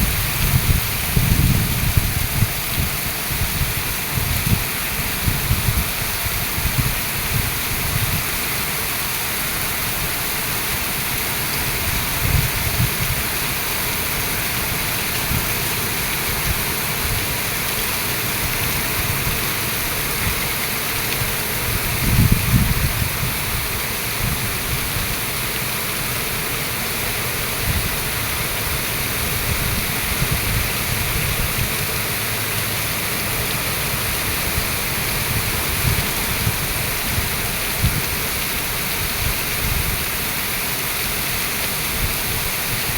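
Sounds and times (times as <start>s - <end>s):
rain pouring: 0.0s - 42.9s.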